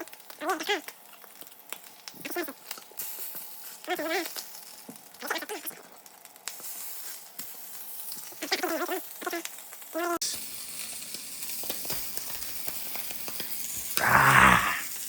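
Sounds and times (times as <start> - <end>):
food sizzling in a pan: 0.0 - 15.0
short wavering vocal sounds: 14.0 - 14.9.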